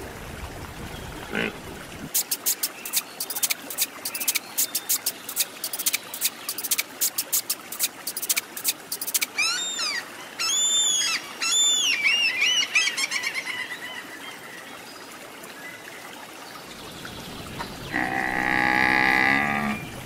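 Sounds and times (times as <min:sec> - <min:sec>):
background hiss: 0:01.4 - 0:09.4.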